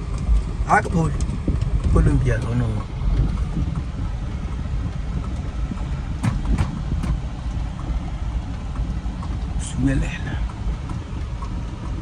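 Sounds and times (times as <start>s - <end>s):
road rumble: 0.0s - 12.0s
car engine: 3.7s - 12.0s.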